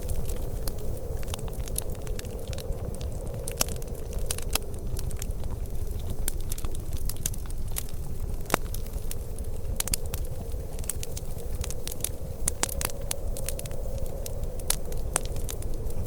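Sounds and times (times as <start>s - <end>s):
steady low rumble: 0.0s - 16.0s
wood fire crackling: 0.0s - 16.0s.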